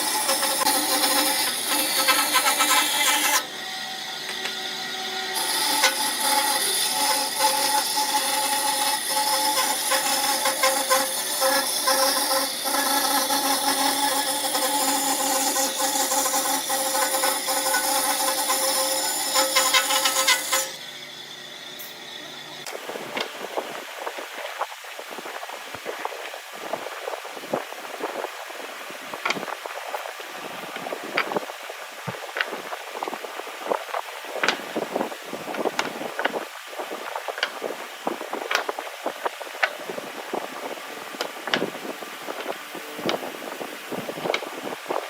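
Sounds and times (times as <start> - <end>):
wood lathe motor whine: 0.0 - 23.6
tool cutting wood with a hiss: 0.0 - 24.7.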